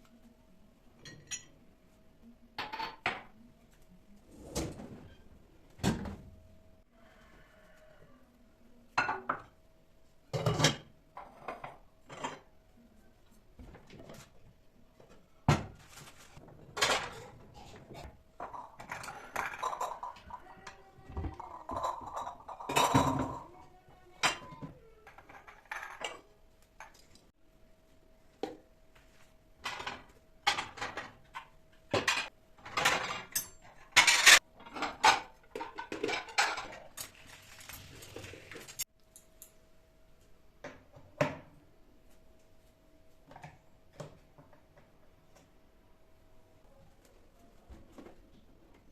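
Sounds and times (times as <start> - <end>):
dishes and cutlery clinking: 1.0 - 1.6, 2.6 - 3.3, 10.3 - 12.5, 16.7 - 23.6, 24.2 - 27.3, 29.6 - 39.6.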